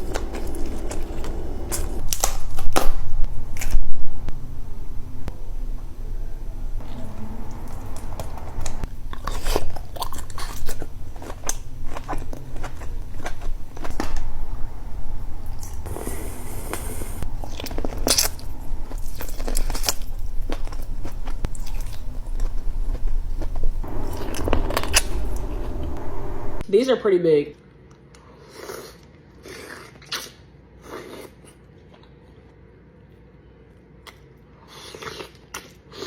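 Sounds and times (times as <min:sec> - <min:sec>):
chewing and crunching: 0:00.0 - 0:03.0, 0:06.8 - 0:26.4, 0:34.0 - 0:36.0
low steady hum: 0:00.0 - 0:26.7.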